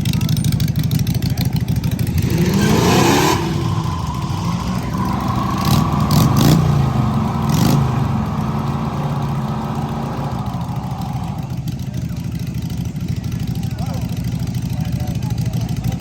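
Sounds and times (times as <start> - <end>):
cars pulling away: 0.0 - 13.5
car engine revving: 1.5 - 11.9.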